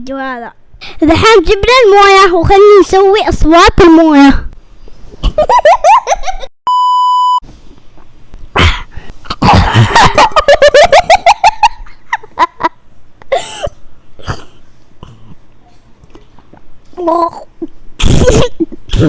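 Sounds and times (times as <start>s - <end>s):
short electronic beep: 6.7s - 7.4s
person spluttering and coughing: 8.6s - 10.2s, 13.3s - 15.4s, 17.3s - 19.0s
person gargling: 17.0s - 19.0s.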